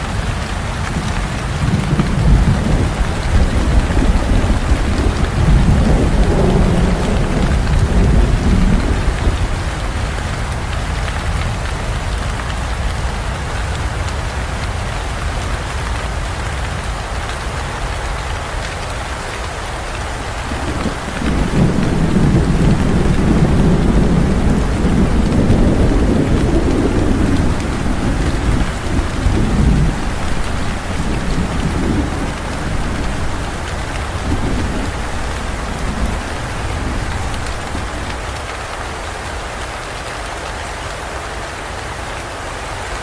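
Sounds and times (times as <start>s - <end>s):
steady rain: 0.0s - 43.0s
thunder rumbling: 0.6s - 10.2s, 20.0s - 39.3s.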